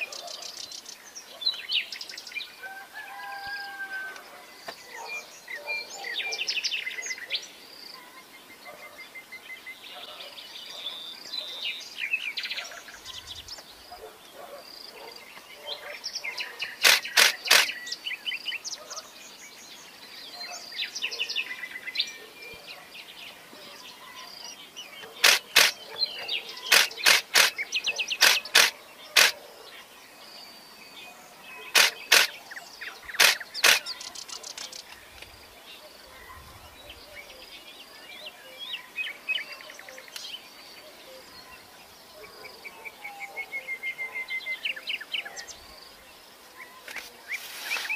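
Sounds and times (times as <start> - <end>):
songbirds chirping: 0.0 - 47.9
sharp clicks: 16.8 - 17.8, 25.0 - 25.9, 26.7 - 29.4, 31.7 - 32.4, 33.1 - 35.3.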